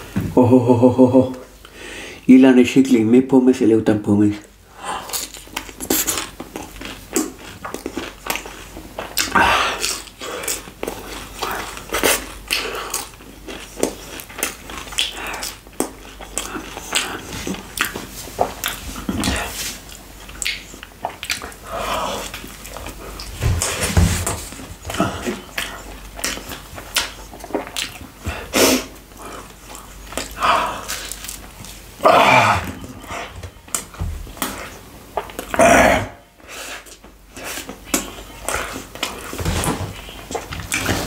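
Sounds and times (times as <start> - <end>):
wet chewing mouth clicks: 5.0 - 23.7, 24.5 - 31.8, 32.8 - 35.6, 36.7 - 39.4.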